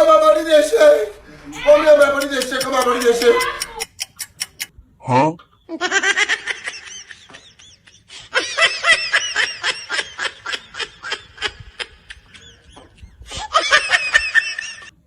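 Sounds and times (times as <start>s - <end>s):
high-pitched rapid laughter: 2.0s - 4.7s.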